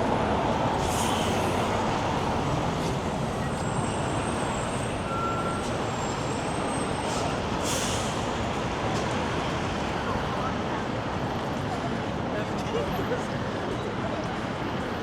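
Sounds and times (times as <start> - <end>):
road traffic rumble: 0.0 - 10.8.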